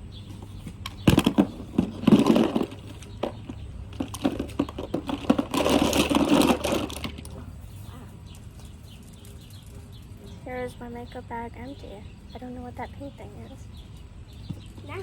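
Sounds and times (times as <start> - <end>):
plastic products clattering: 0.9 - 7.4.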